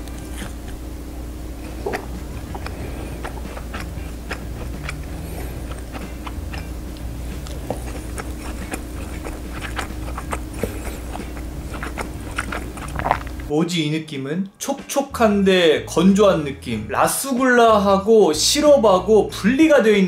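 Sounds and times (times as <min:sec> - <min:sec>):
wet chewing and mouth clicks: 0:00.0 - 0:00.8, 0:01.6 - 0:13.5
low hum: 0:00.0 - 0:13.5.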